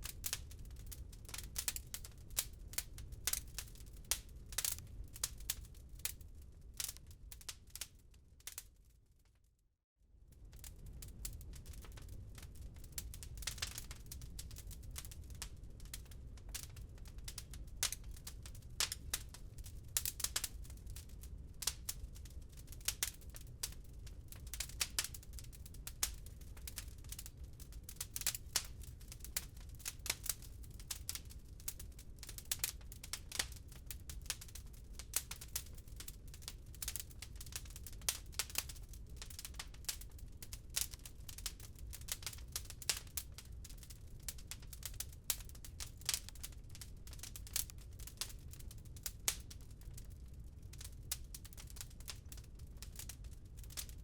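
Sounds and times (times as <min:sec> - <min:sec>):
log fire crackling: 0:00.0 - 0:08.8, 0:10.3 - 0:53.9
low rumble of fire: 0:00.0 - 0:09.4, 0:10.0 - 0:54.0.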